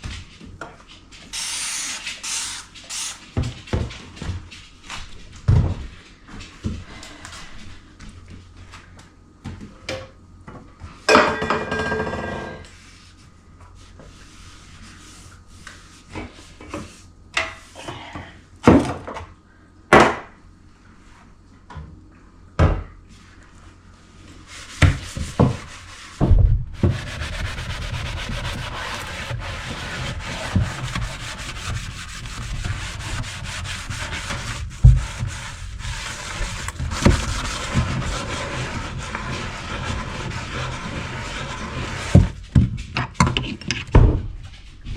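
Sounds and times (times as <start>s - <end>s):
dishes and pots clattering: 11.1s - 12.7s.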